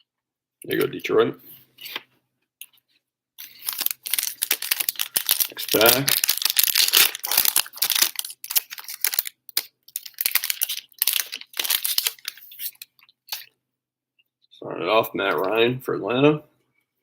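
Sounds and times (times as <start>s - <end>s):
card pack wrapper tearing: 3.4s - 13.5s.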